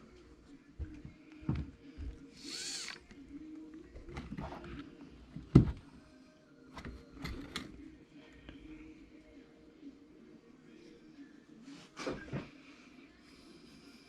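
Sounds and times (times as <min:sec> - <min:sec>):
tools and parts clicking: 0:02.5 - 0:03.1, 0:06.8 - 0:07.8.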